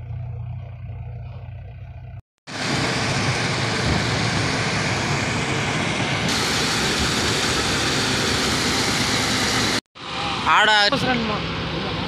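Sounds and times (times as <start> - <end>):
heavy diesel machinery rumbling: 0.0 - 12.0.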